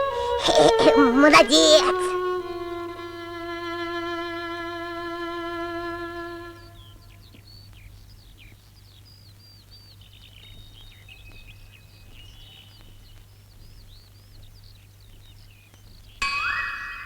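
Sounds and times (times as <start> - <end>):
faint birdsong: 0.0 - 17.0.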